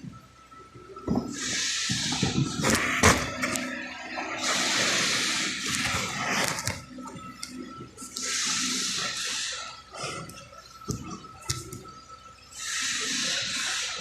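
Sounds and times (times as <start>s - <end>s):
bursts of hissing: 1.3s - 3.2s, 4.4s - 6.3s, 8.2s - 10.0s, 12.6s - 14.0s.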